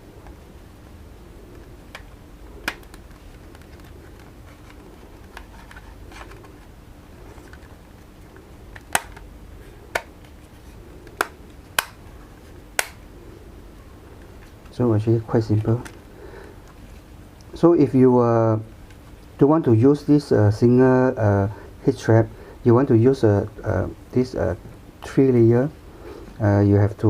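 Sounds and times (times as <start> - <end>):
handling rustles: 2.7 - 12.6
plastic parts clicking: 8.7 - 9.3.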